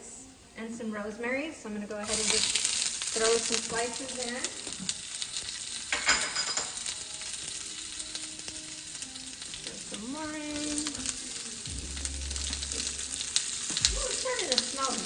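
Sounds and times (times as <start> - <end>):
food sizzling in oil: 1.2 - 15.0
low rumble: 11.6 - 14.6.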